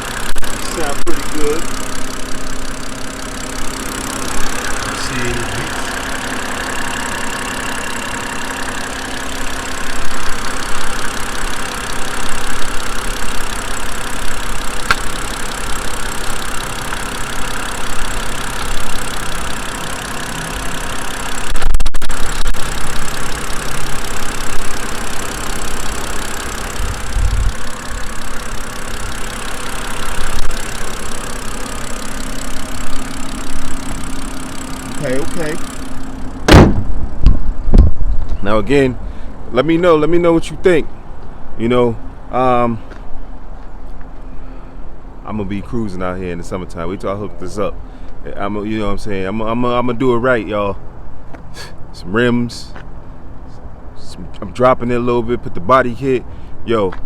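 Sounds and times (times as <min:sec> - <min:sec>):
car engine idling: 0:00.0 - 0:57.0
low thumps: 0:36.4 - 0:38.4.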